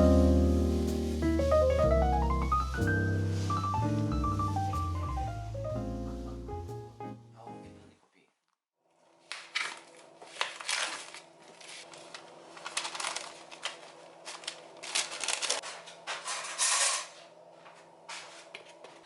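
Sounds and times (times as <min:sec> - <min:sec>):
objects being handled: 0:09.3 - 0:19.0.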